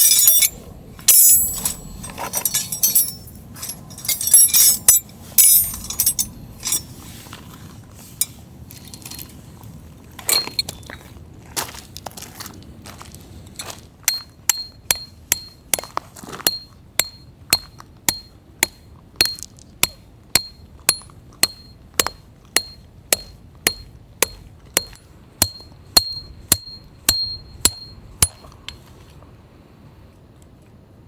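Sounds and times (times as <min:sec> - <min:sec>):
hammer striking metal: 0:00.0 - 0:06.9, 0:14.1 - 0:28.8.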